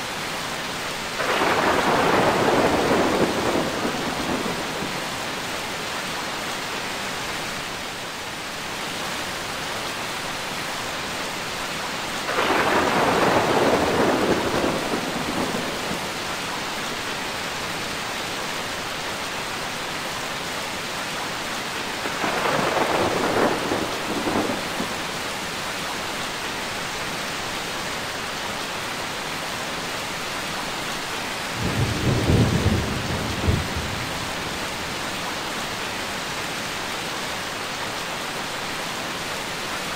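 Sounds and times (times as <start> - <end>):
steady rain: 0.0 - 39.9
thunder rolling: 1.2 - 5.1, 12.3 - 16.2, 22.0 - 25.0.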